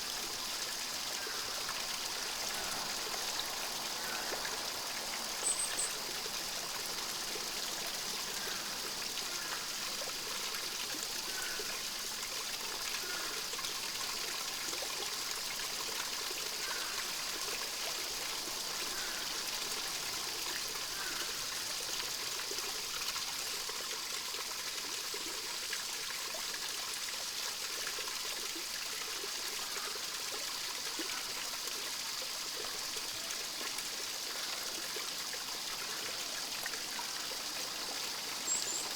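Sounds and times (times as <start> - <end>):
stream trickling: 0.0 - 38.9
faint bird chirps: 38.3 - 38.9.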